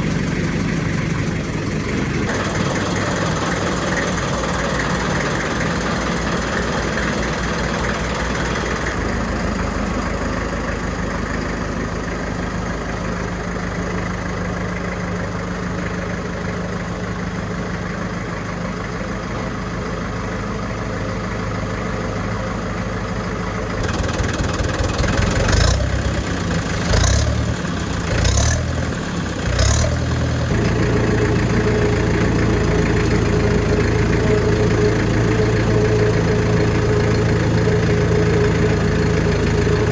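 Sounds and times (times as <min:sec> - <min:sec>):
diesel tractor engine idling: 0:00.0 - 0:39.9
engine revving in short surges: 0:23.8 - 0:39.9.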